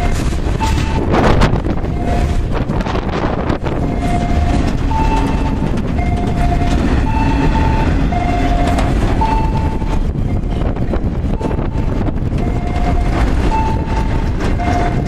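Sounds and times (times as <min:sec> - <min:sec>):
freight train rolling past: 0:00.0 - 0:15.0
wheel clatter: 0:00.0 - 0:15.0
two-note alternating tone: 0:03.8 - 0:15.0.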